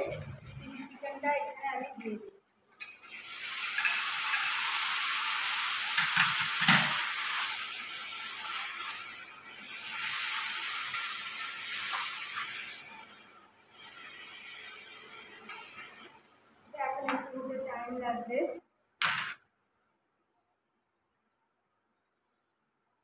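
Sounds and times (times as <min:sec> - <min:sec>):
chicken sizzling in hot oil: 0:00.0 - 0:18.1.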